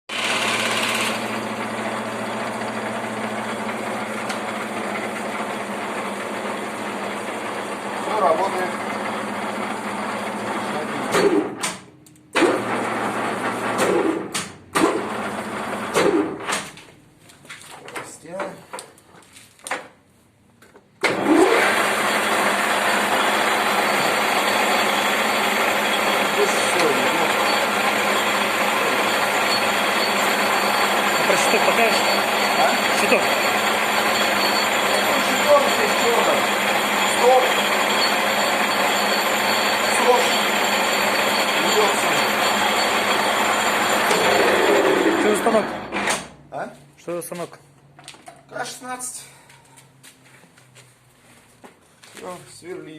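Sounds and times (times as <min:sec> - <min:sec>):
lathe mechanical hum: 0:00.1 - 0:11.2, 0:21.1 - 0:46.3.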